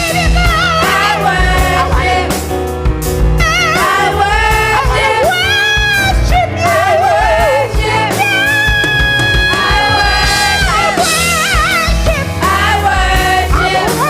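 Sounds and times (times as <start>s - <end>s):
band playing a steady beat: 0.0s - 14.0s
person singing with vibrato: 8.4s - 13.2s.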